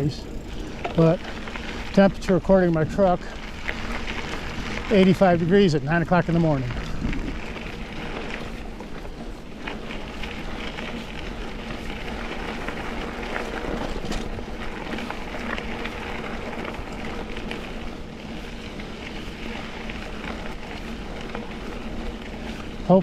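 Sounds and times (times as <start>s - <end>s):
bike clicks and rattles: 0.0s - 23.0s
bike tyres on dirt trail: 0.0s - 23.0s
wind noise: 6.3s - 9.3s.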